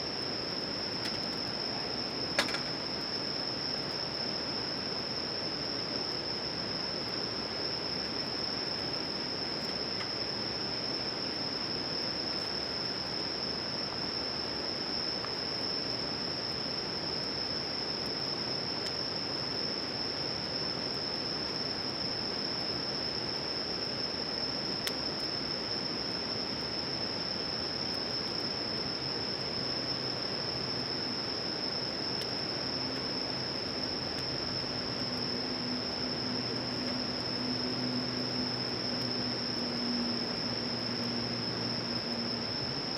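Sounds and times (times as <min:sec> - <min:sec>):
background hiss: 0:00.0 - 0:42.9
crickets chirring: 0:00.0 - 0:42.9.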